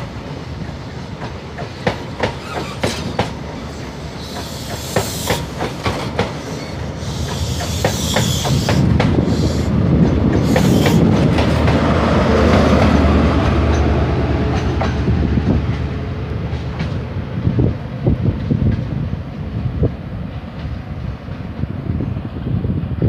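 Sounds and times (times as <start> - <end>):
train rumble: 0.0 - 23.0
train wheels clicking over rail joints: 0.1 - 17.2.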